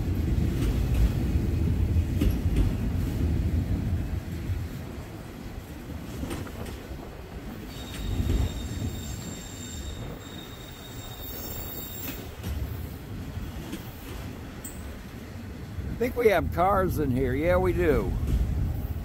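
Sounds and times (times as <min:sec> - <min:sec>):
train wheels rumbling on rail: 0:00.0 - 0:19.0
high-pitched wheel squeal: 0:07.7 - 0:12.3.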